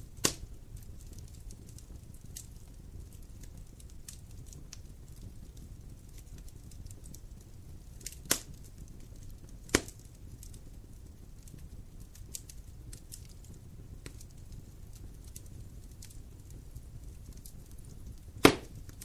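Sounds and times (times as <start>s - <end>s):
wood fire crackling: 0.0s - 19.0s
loud sharp fire pops: 0.1s - 0.5s, 8.0s - 10.6s, 12.2s - 19.0s.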